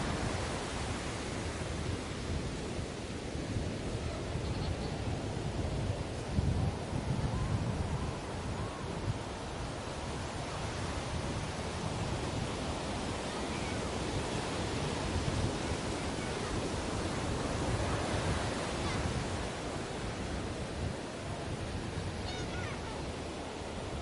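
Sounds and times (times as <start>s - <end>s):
ocean waves washing onto beach: 0.0s - 24.0s
faint chirp: 4.4s - 5.0s.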